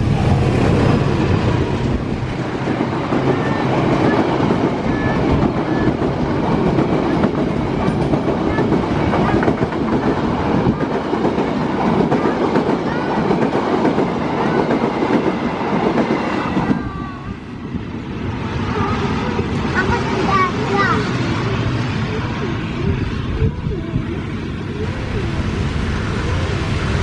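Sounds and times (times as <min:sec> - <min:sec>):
train wheels clattering over rails: 0:00.0 - 0:17.0.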